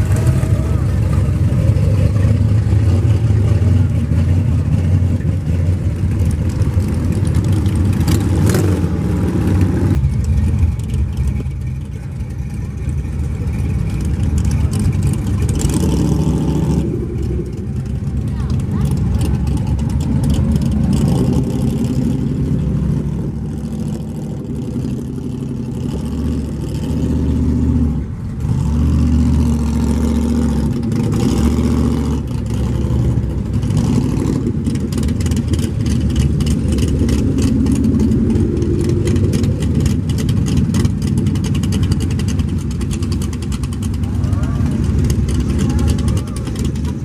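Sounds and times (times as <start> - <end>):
car engines rumbling: 0.0 - 47.0.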